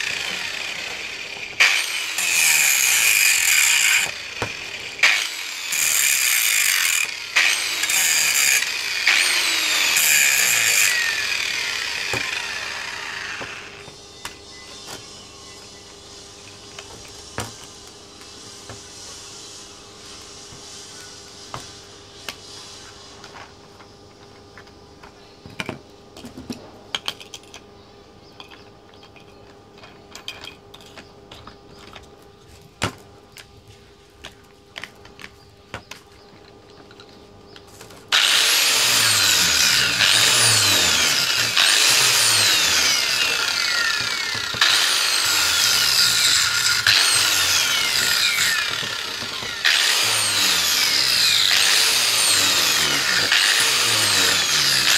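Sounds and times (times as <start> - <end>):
rasping cutting tool on metal pipe: 0.0 - 13.8, 38.1 - 54.9
metal parts tapping: 28.4 - 32.1.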